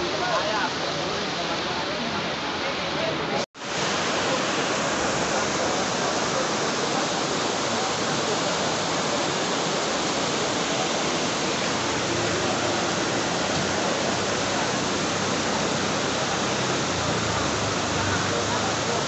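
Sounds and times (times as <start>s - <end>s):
heavy rain: 0.0s - 19.0s
wind: 0.0s - 19.0s.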